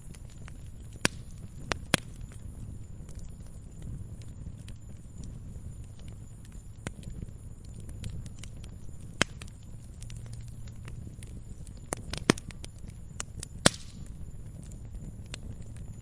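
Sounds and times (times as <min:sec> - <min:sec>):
wood fire crackling: 0:00.0 - 0:16.0
sharp loud fire pops: 0:13.6 - 0:14.2.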